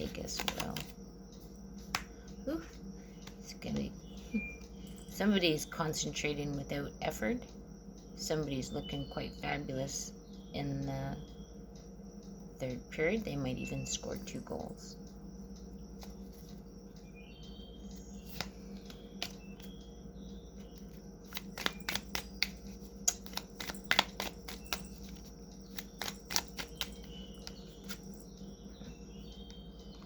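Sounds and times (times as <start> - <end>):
faint bird chirp: 0.0 - 7.3, 7.9 - 30.0
low hum: 0.0 - 30.0
cards being shuffled: 0.2 - 0.9, 18.3 - 19.7, 21.3 - 28.1.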